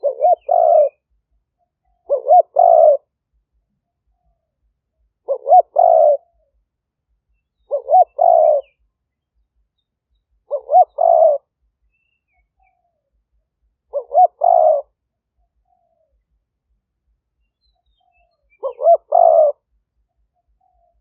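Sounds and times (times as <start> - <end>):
dove cooing: 0.0 - 1.1, 1.8 - 3.1, 5.2 - 6.6, 7.6 - 8.8, 10.4 - 11.5, 13.8 - 15.0, 18.2 - 21.0.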